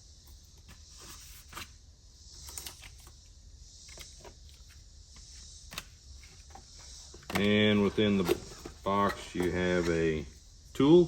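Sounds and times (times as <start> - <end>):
packaging being handled: 5.7 - 10.2.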